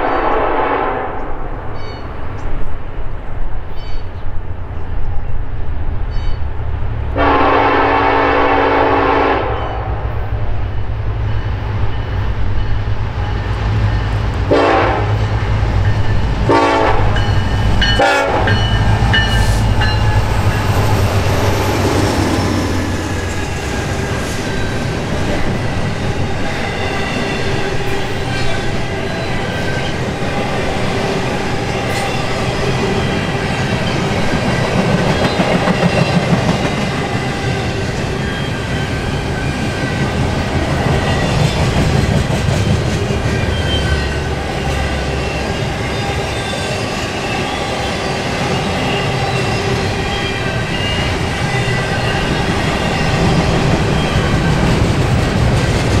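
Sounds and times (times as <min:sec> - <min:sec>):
locomotive air horn blasts: 0:00.0 - 0:01.4, 0:07.2 - 0:10.1, 0:14.5 - 0:15.2, 0:16.4 - 0:17.2, 0:17.9 - 0:18.8.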